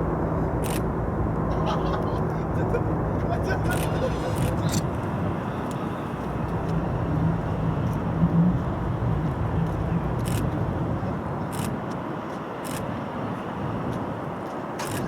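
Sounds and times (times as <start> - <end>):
outdoor rumble: 0.0 - 11.9.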